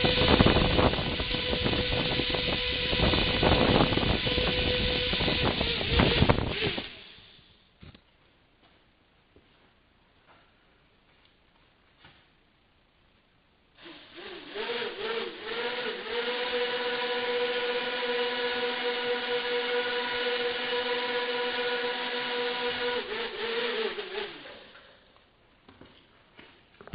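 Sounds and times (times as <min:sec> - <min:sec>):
small motor whining: 0:00.0 - 0:07.4, 0:13.8 - 0:24.9.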